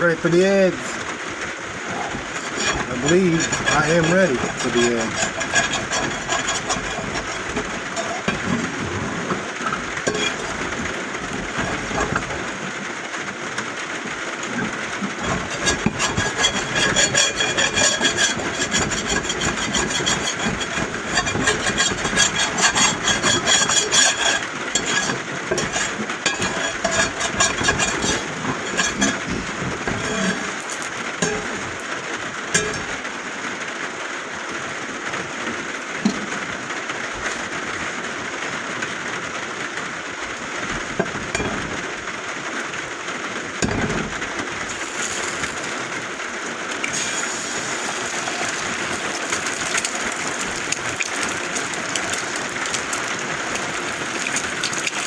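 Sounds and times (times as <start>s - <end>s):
eggs sizzling in a pan: 1.9s - 12.6s, 14.6s - 31.6s, 44.7s - 55.0s.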